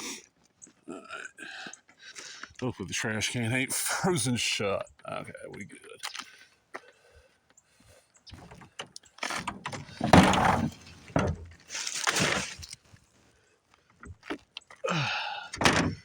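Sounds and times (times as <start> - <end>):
trash bag rustling and scraping: 9.4 - 12.8
heavy thud in trash can: 10.0 - 11.5.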